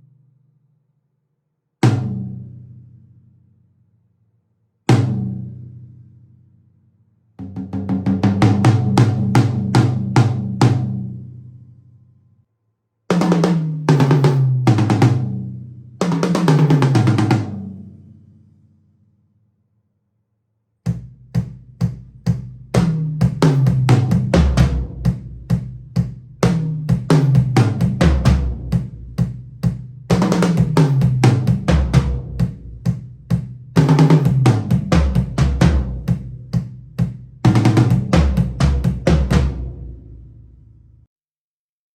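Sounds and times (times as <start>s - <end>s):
bass drum and snare beat: 1.8s - 2.6s, 4.9s - 5.8s, 7.4s - 11.1s, 13.1s - 17.8s, 20.9s - 40.5s
tom fills on drums: 4.9s - 5.8s, 7.4s - 11.1s, 13.1s - 17.9s, 20.9s - 40.6s.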